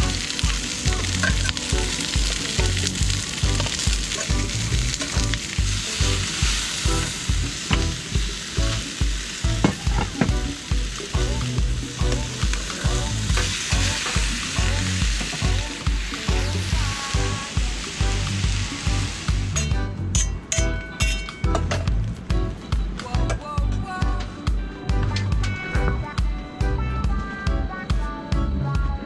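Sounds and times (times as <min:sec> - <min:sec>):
food sizzling: 0:00.0 - 0:19.7
background music with bass beat: 0:00.0 - 0:29.0.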